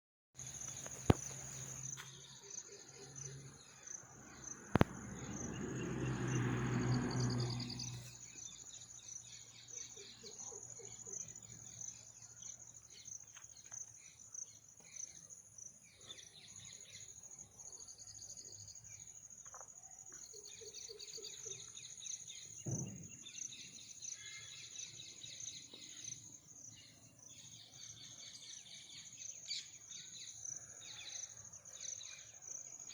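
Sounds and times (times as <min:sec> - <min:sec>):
high insect drone: 0:03.2 - 0:09.3.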